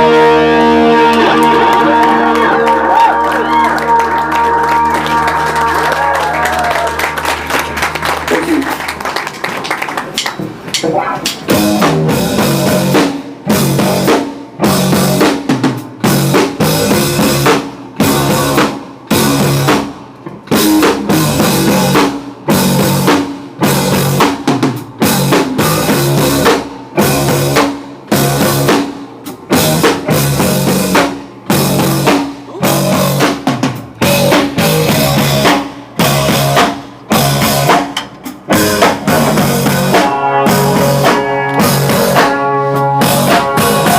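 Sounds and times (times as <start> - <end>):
live band music: 0.0 - 9.2, 9.9 - 43.9
drum kit hits: 10.2 - 43.9.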